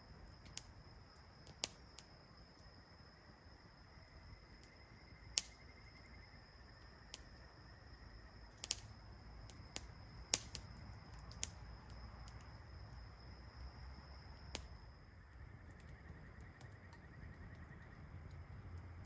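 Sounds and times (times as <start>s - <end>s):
campfire crackling and popping: 0.1s - 2.2s, 4.4s - 5.7s, 6.8s - 7.4s, 8.4s - 13.1s, 14.4s - 19.0s.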